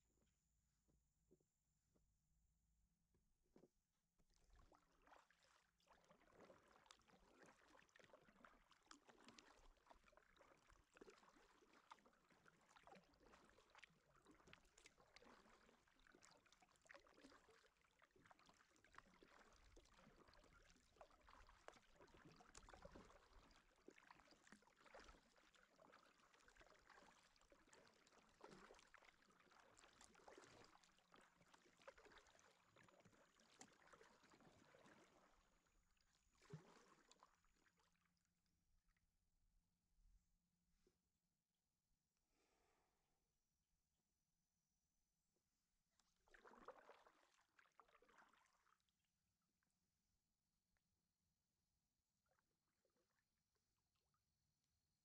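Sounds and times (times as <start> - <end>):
paddle splashing in water: 4.3 - 37.9, 46.1 - 48.7.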